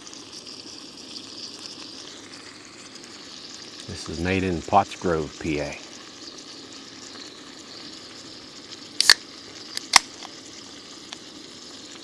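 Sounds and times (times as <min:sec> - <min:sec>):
food sizzling in a pan: 0:00.0 - 0:12.0
sharp clicks: 0:09.8 - 0:10.1.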